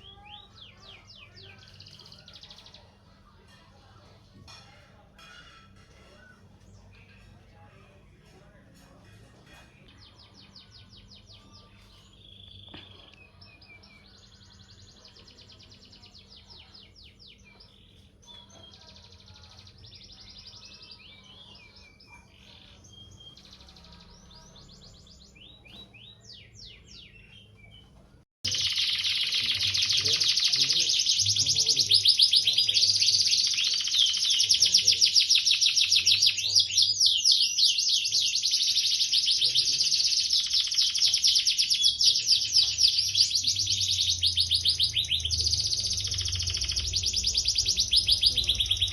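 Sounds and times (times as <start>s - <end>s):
songbird chirps and trills: 0.0s - 48.9s
loud fast chattering trill: 28.5s - 36.7s, 38.2s - 48.9s.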